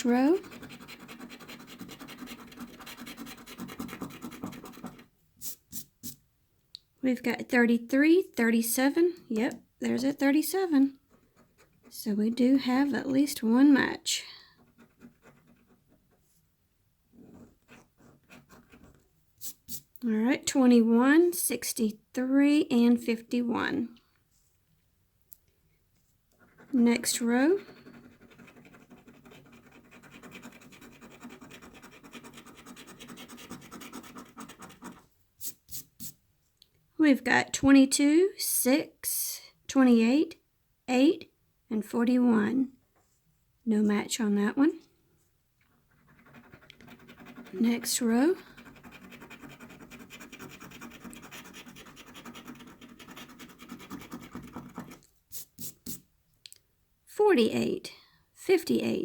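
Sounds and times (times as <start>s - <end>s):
scratching lottery ticket: 0.0s - 6.2s, 14.6s - 16.2s, 26.4s - 36.1s, 45.7s - 55.8s.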